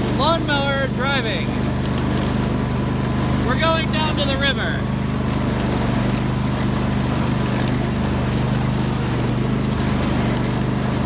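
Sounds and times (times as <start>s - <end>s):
lawn tractor engine running: 0.0s - 11.0s.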